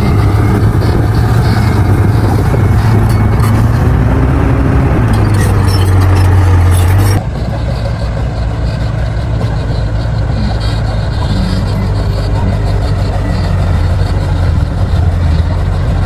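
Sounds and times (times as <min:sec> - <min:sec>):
metallic clanks: 0:00.0 - 0:04.1, 0:05.0 - 0:07.9
bulldozer diesel engine droning: 0:00.0 - 0:16.0.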